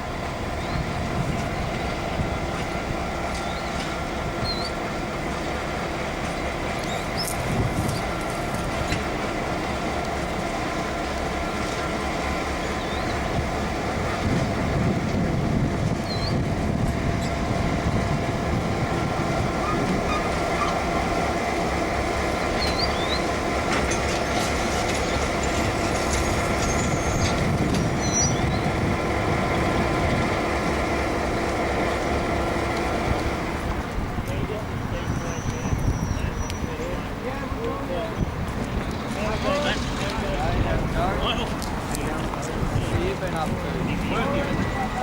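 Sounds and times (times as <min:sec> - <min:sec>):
locomotive engine drone: 0:00.0 - 0:45.0
wheels rumbling on rails: 0:00.0 - 0:45.0.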